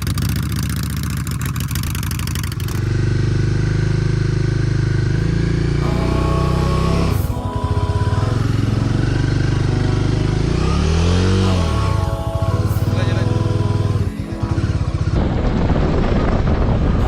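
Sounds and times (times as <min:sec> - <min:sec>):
motorcycle engine running: 0:00.0 - 0:17.0
wind rushing over microphone: 0:14.2 - 0:17.0.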